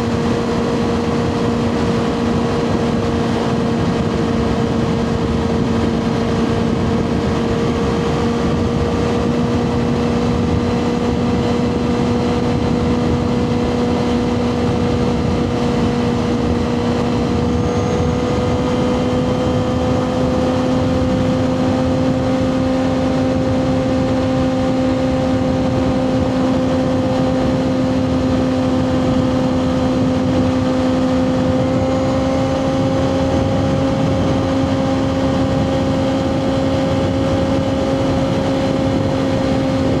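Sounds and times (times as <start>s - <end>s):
motorcycle engine running: 0.0s - 40.0s
wind and road noise: 0.0s - 40.0s.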